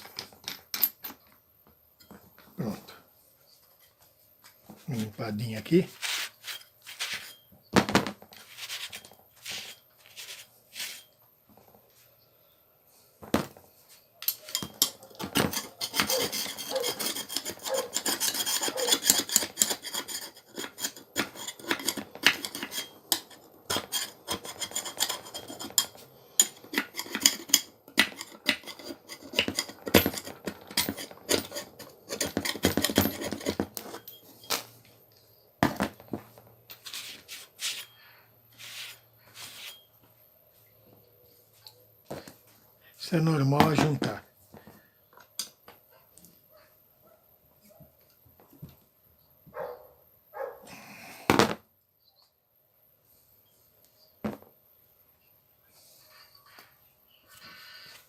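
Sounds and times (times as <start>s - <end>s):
scrubbing machine parts: 14.3s - 34.1s.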